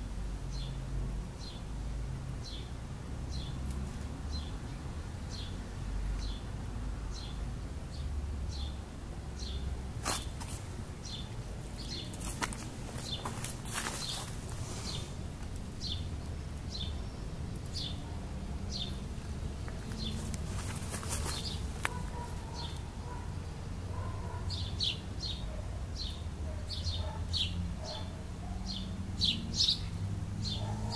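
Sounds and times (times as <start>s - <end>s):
bird chirping: 15.8s - 18.1s, 19.8s - 28.1s, 28.7s - 30.9s.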